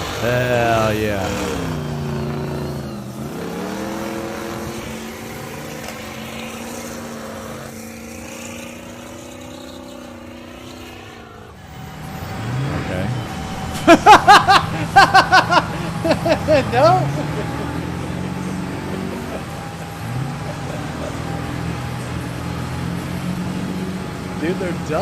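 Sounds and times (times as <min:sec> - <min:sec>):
truck engine revving: 0:00.0 - 0:25.0.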